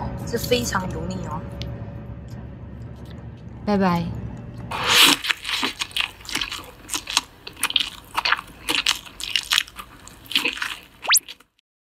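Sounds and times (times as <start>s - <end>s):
crunchy chewing: 4.4s - 11.6s.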